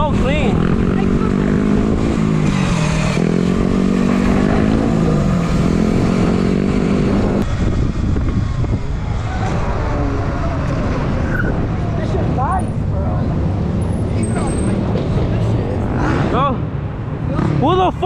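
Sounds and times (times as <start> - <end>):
dirt bike engine revving: 0.0 - 7.5
steady low rumble: 3.7 - 9.3.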